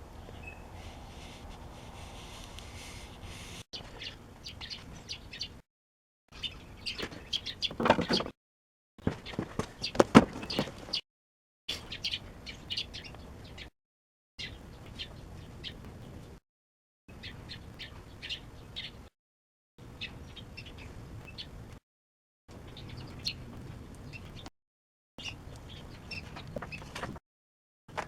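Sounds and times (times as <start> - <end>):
small birds chirping: 0.0 - 5.6, 6.3 - 8.3, 9.1 - 11.0, 11.7 - 13.7, 14.4 - 16.4, 17.1 - 19.1, 19.8 - 21.7, 22.5 - 24.5, 25.2 - 27.1.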